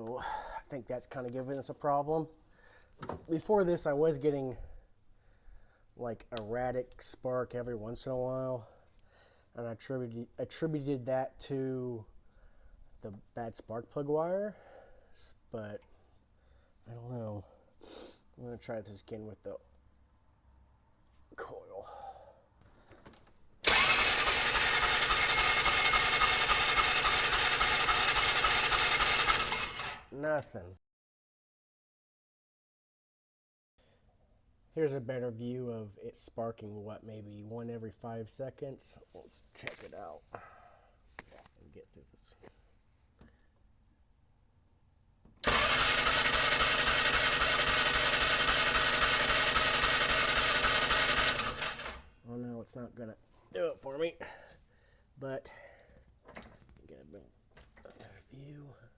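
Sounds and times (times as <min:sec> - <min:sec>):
engine cranking by starter: 0:23.6 - 0:30.1, 0:45.4 - 0:52.2.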